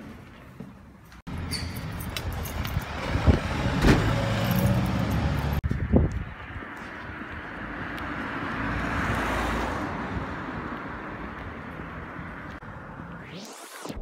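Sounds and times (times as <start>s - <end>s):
outdoor traffic noise: 0.0s - 14.0s
vehicle passing: 2.2s - 13.5s
rising whoosh: 12.6s - 14.0s.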